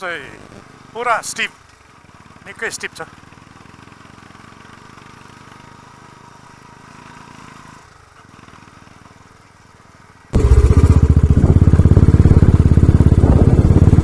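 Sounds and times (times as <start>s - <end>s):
motorcycle engine rumbling: 10.4s - 14.0s.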